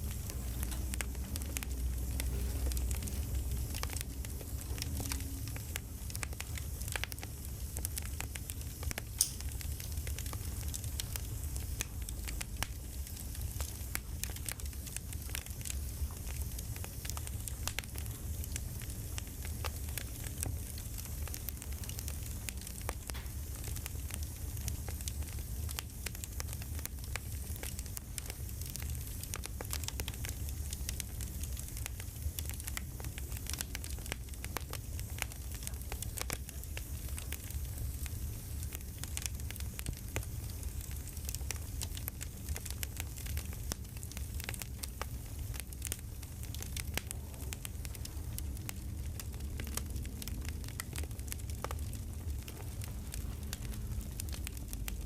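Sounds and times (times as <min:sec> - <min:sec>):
low rumble: 0:00.0 - 0:12.8, 0:45.9 - 0:55.0
campfire crackling: 0:00.0 - 0:55.0.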